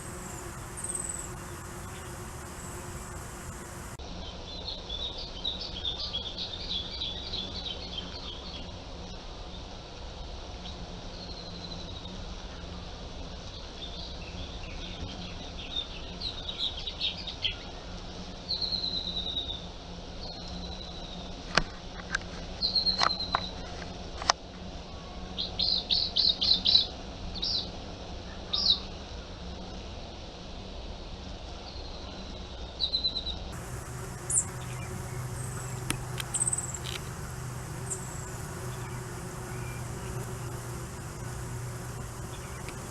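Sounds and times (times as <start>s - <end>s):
birds chirping and trilling: 0.0s - 4.0s, 33.6s - 42.9s
steady low hum: 0.0s - 4.0s, 33.5s - 42.9s
sharp clicks: 33.6s - 42.9s.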